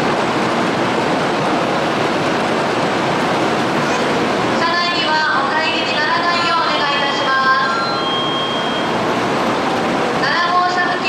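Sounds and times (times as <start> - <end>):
train rushing noise: 0.0 - 11.0
thin high tone: 6.2 - 9.2.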